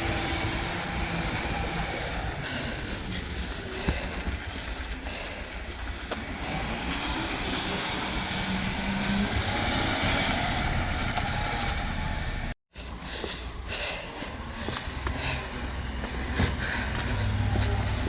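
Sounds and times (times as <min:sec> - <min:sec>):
rubbish truck engine rumbling: 0:00.0 - 0:18.0.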